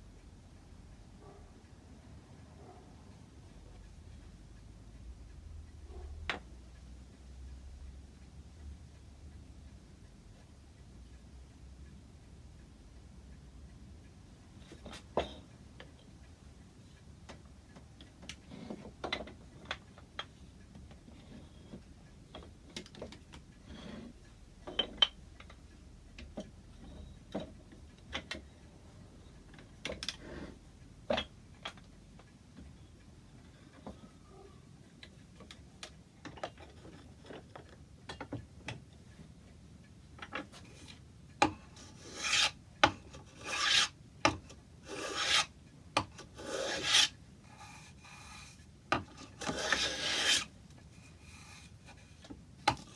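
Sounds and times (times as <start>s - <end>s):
rasping strokes on wood: 41.8s - 43.9s, 44.8s - 45.5s, 46.2s - 52.9s.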